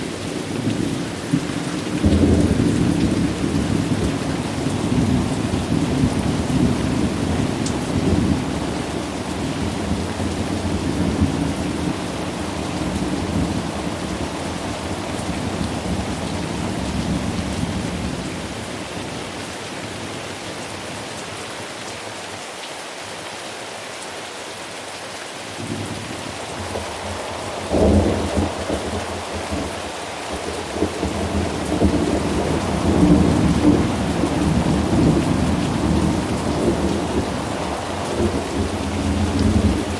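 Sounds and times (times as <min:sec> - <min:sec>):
steady rain: 0:00.0 - 0:39.9
rolling thunder: 0:26.6 - 0:39.9.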